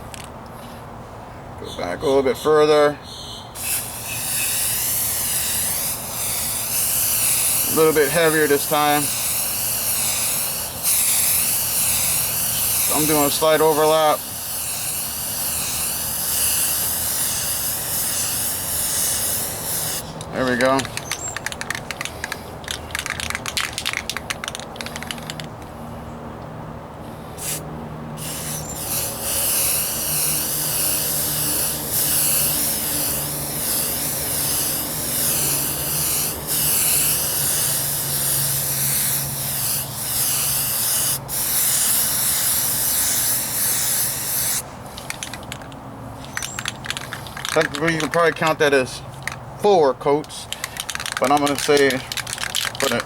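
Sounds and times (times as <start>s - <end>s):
aerosol spray can hissing: 3.6s - 20.1s, 27.4s - 27.6s, 28.2s - 45.6s, 46.2s - 48.6s, 50.5s - 53.0s.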